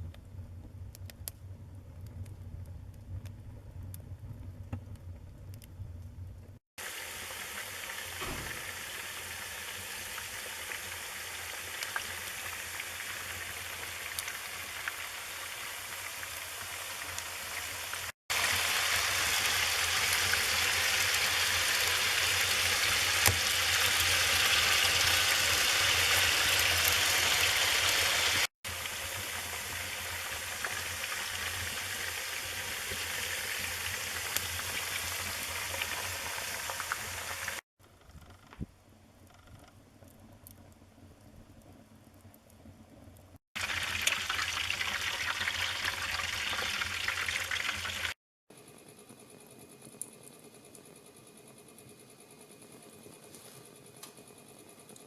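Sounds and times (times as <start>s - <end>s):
fire hissing: 6.8s - 37.6s.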